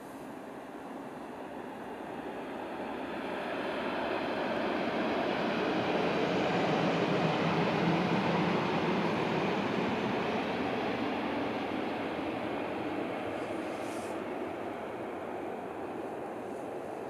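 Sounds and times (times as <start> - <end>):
high-speed train passing: 0.0 - 17.0.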